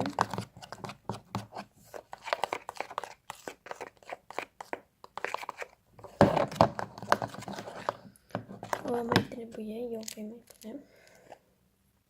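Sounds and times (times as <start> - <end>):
slime crackling as stirred: 0.0 - 8.0.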